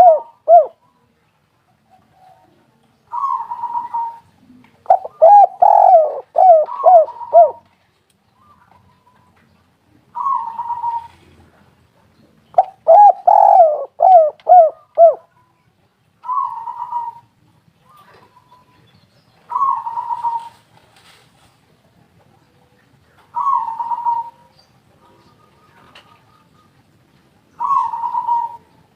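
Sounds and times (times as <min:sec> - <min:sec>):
dove cooing: 0:00.0 - 0:00.8, 0:03.1 - 0:07.7, 0:10.1 - 0:11.5, 0:12.6 - 0:15.3, 0:16.2 - 0:17.3, 0:19.5 - 0:20.7, 0:23.3 - 0:26.8, 0:27.6 - 0:28.8.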